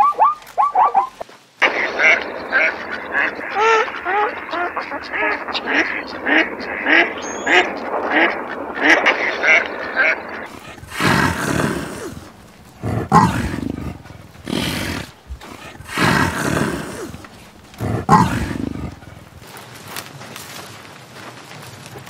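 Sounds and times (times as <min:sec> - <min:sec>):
duck quacks: 0:00.0 - 0:19.2
big cat rough calls: 0:01.9 - 0:19.4.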